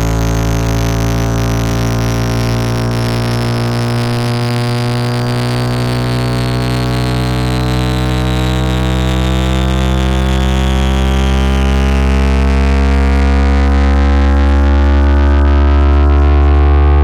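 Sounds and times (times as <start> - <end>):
synthesized electronic drone: 0.0 - 17.0
high tone falling in pitch: 13.3 - 17.0.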